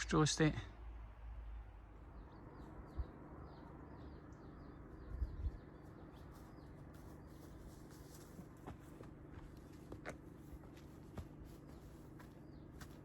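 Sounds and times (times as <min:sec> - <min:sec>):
small bird chirping: 0:01.5 - 0:08.2.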